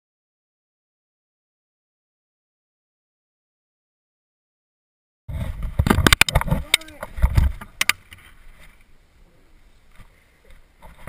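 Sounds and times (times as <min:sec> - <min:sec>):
wind and microphone handling rumble: 0:05.3 - 0:08.8
sharp clicks and knocks: 0:05.6 - 0:08.2.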